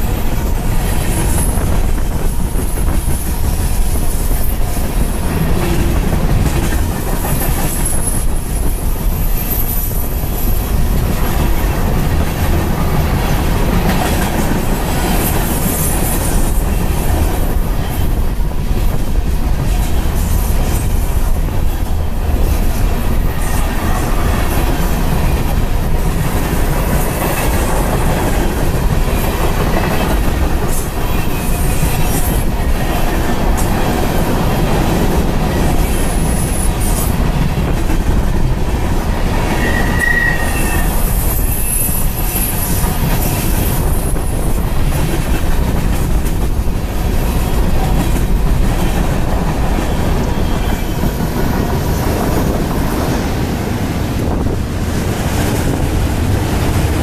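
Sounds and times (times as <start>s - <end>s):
train wheels rumbling on rail: 0.0s - 57.0s
wheel squeal: 39.6s - 42.9s.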